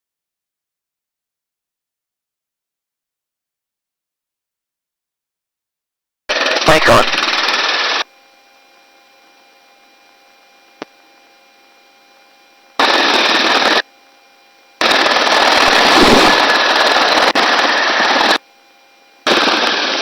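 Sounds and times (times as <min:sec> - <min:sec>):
helicopter rotor and engine noise: 0:06.3 - 0:20.0
low steady hum: 0:07.1 - 0:20.0.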